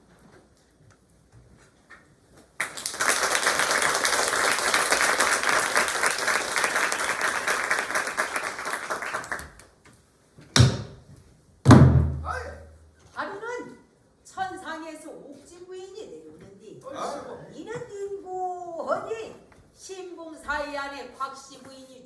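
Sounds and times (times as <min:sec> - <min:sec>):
audience clapping: 0:02.6 - 0:09.7
sharp knocks: 0:10.6 - 0:11.0, 0:11.7 - 0:12.4.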